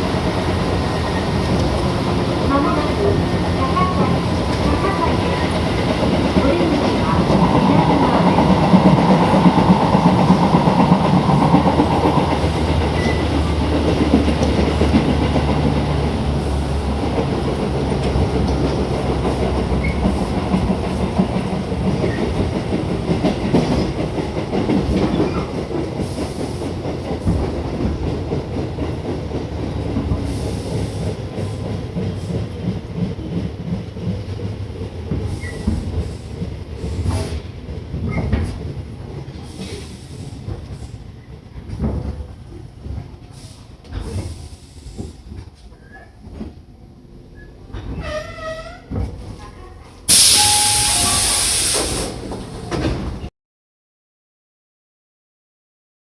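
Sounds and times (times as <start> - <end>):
train running noise: 0.0 - 53.3
train wheels clacking over rail joints: 5.4 - 16.1.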